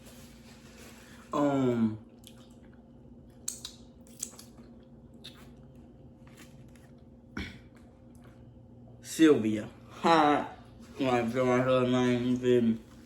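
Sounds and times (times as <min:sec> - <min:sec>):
steady low hum: 0:00.0 - 0:13.0
person chewing and crunching: 0:02.1 - 0:08.4.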